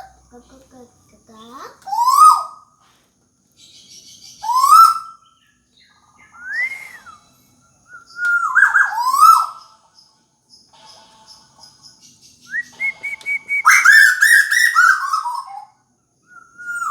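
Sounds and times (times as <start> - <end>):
bird whistled calls: 1.9 - 2.7, 3.9 - 5.4, 6.2 - 9.7, 12.4 - 16.9.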